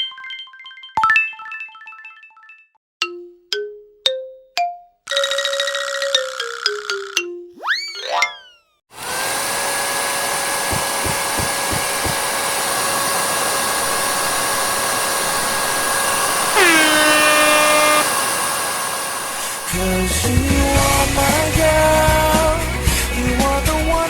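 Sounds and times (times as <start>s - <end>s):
hair dryer running: 8.9s - 21.1s
loud whining tone dropping in pitch: 15.4s - 18.4s.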